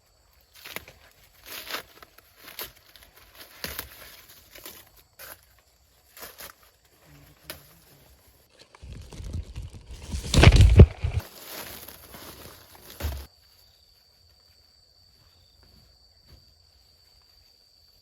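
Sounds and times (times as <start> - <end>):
dry corn plants rustling: 0.1 - 7.4, 8.1 - 13.9.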